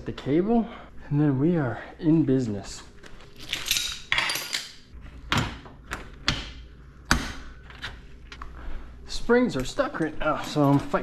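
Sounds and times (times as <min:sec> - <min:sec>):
metal tools clanking on hardware: 0:03.4 - 0:04.8, 0:09.5 - 0:11.0.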